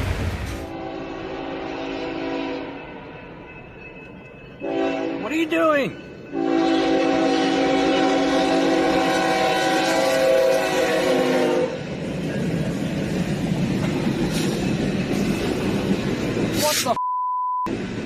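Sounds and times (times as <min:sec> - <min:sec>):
train rumbling on rails: 0:00.0 - 0:17.0, 0:17.7 - 0:18.0
train horn: 0:00.6 - 0:03.0, 0:04.6 - 0:05.3, 0:06.3 - 0:11.8.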